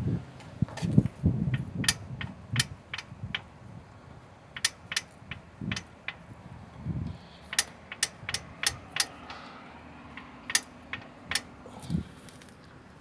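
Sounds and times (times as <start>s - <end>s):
metallic clicks and clinks: 7.5s - 9.4s, 10.2s - 11.5s.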